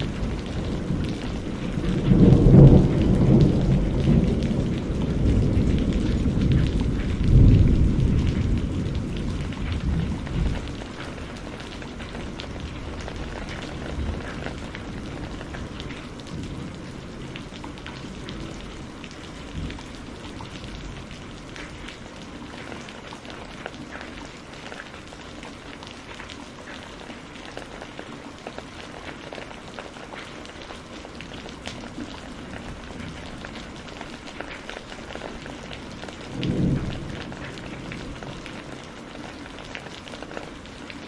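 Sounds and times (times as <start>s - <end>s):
low thunder rumble: 0.0s - 21.9s, 35.0s - 39.0s
raindrops ticking on a surface: 0.0s - 41.0s
steady rain: 0.0s - 41.0s.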